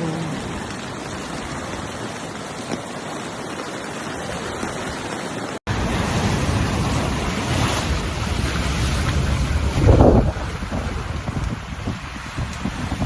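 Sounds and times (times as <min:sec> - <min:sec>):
sea surf: 0:00.0 - 0:13.0
wind: 0:00.0 - 0:13.0
wind rumble on microphone: 0:05.7 - 0:13.0.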